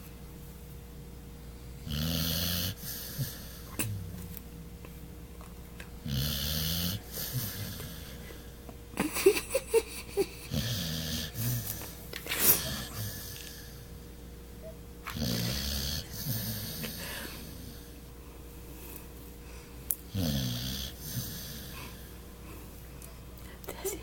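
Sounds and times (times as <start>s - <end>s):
dog snoring: 1.7s - 4.2s, 6.0s - 8.5s, 10.4s - 13.9s, 15.0s - 17.9s, 20.1s - 22.2s.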